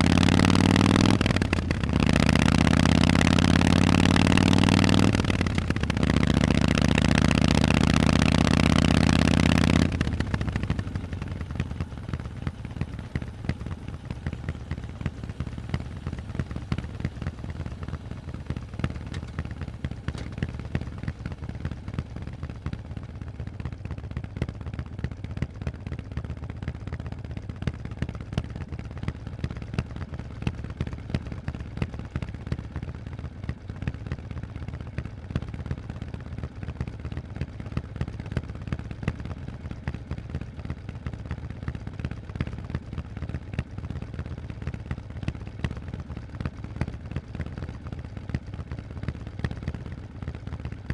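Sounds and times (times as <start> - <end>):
motorcycle engine idling: 0.0 - 50.9
exhaust pops: 0.1 - 25.5.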